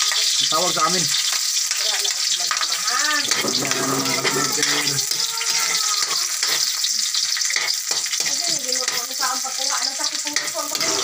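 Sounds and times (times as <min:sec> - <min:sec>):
garlic and onion sizzling in oil: 0:00.0 - 0:11.0
metal spatula scraping wok: 0:02.5 - 0:11.0.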